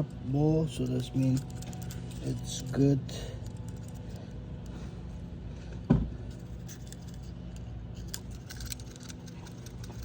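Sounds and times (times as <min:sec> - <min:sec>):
metal parts clinking: 0:00.0 - 0:04.3, 0:06.3 - 0:10.0.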